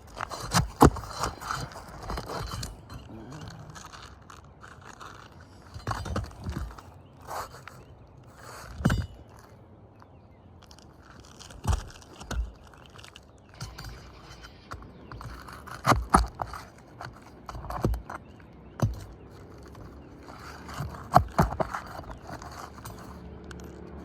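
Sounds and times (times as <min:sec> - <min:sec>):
knocks and thuds on shingles: 0:00.0 - 0:03.0, 0:05.6 - 0:07.6, 0:08.4 - 0:09.6, 0:11.4 - 0:23.2
scraping and rustling: 0:00.0 - 0:09.6, 0:10.6 - 0:24.0.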